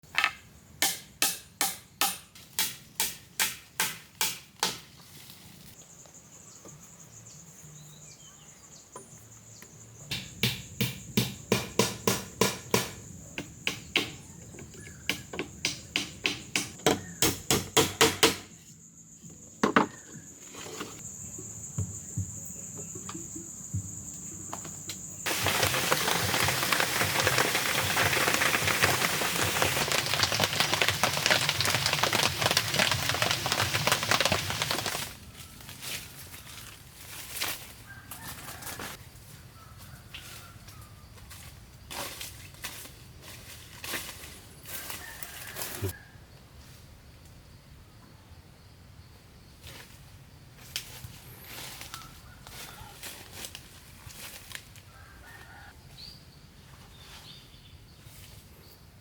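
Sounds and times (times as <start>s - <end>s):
steady rain: 25.3s - 35.1s.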